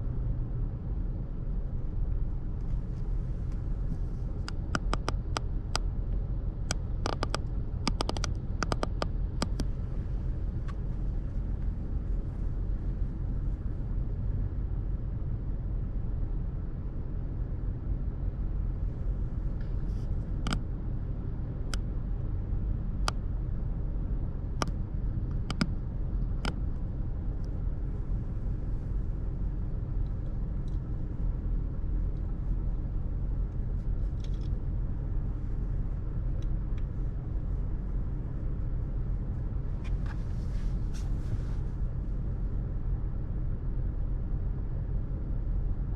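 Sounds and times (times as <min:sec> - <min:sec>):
traffic rumble: 0:00.0 - 0:45.9
sharp clicks: 0:06.8 - 0:09.7.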